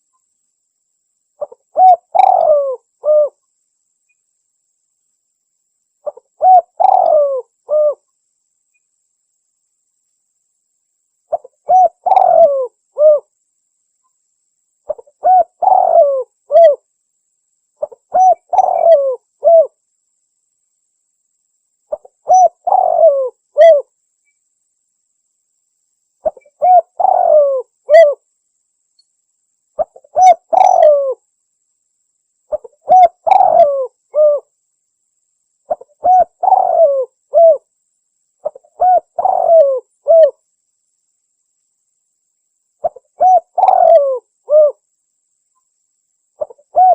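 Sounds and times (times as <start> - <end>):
dove cooing: 1.4 - 3.4, 6.0 - 8.0, 11.3 - 13.3, 14.9 - 16.8, 17.8 - 19.8, 21.9 - 23.9, 26.2 - 28.2, 29.8 - 31.2, 32.5 - 34.5, 35.7 - 37.7, 38.4 - 40.4, 42.8 - 44.8, 46.4 - 46.9.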